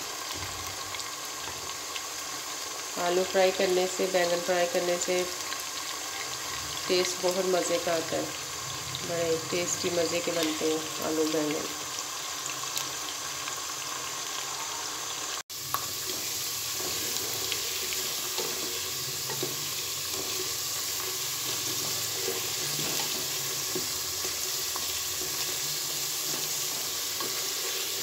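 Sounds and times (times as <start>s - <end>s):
potatoes sizzling in hot oil: 0.0s - 28.0s.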